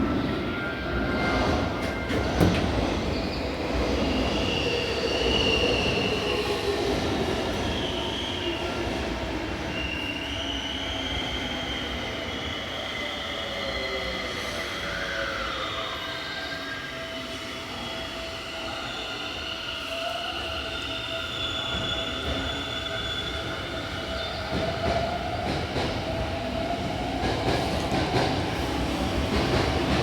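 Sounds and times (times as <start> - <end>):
train wheels squealing: 0.2 - 30.0.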